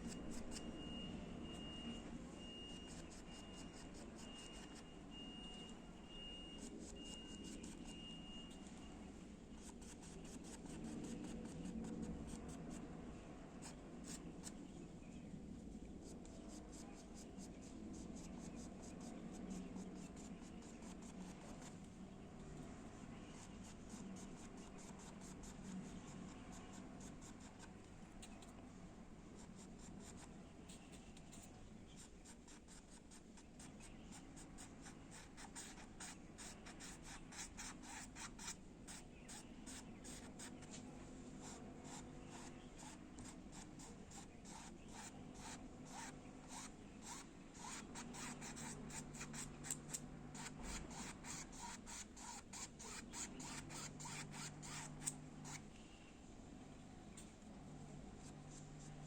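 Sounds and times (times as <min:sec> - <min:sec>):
low steady hum: 0:00.0 - 0:59.0
paintbrush scratchy strokes: 0:29.4 - 0:49.6, 0:50.4 - 0:55.6.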